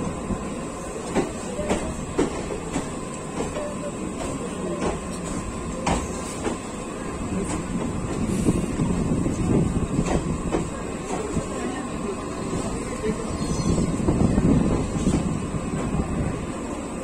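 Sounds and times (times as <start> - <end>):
train rumble: 0.0 - 17.0
train wheels knocking on rail joints: 1.0 - 8.4, 9.3 - 11.7.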